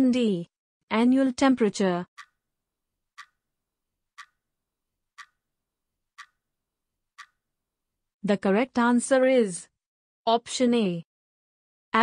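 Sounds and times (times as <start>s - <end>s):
countdown timer ticks: 2.1s - 2.5s, 3.1s - 3.5s, 4.1s - 6.5s, 7.1s - 7.4s.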